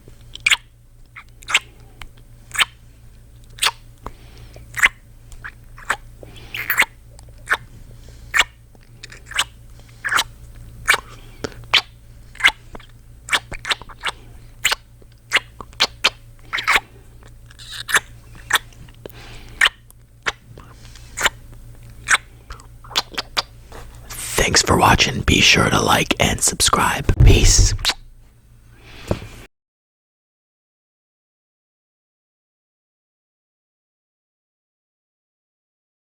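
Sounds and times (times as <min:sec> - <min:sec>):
man's lips smooching: 0:04.8 - 0:07.7, 0:19.6 - 0:21.4, 0:22.0 - 0:28.0.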